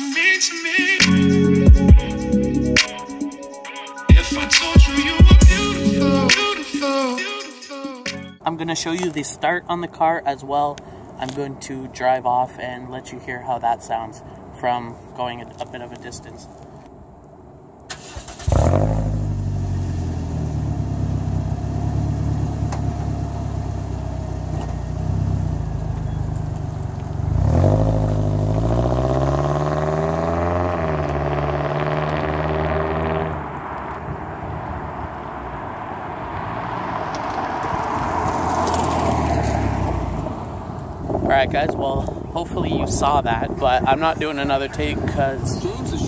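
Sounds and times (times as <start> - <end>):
car engine idling and revving: 18.0 - 41.2.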